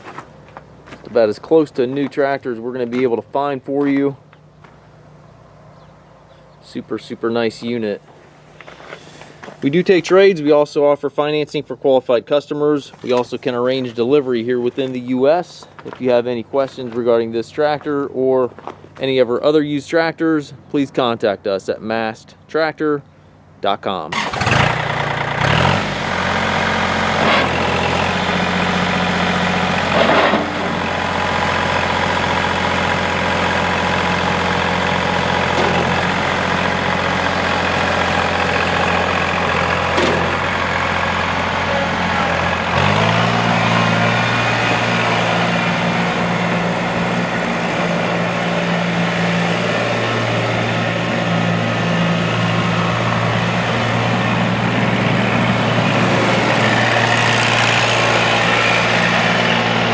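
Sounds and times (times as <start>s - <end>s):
diesel engine idling: 0.0s - 10.6s, 24.2s - 59.9s.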